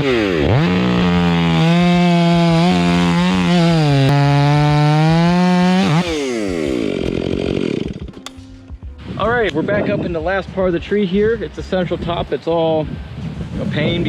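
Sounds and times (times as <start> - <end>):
electric chainsaw cutting wood: 0.0 - 8.4.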